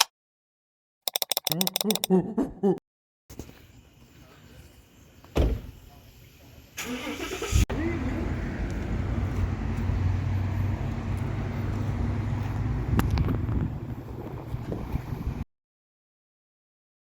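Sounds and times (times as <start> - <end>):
thump: 5.3 - 5.7
car engine starting and idling: 6.8 - 13.7.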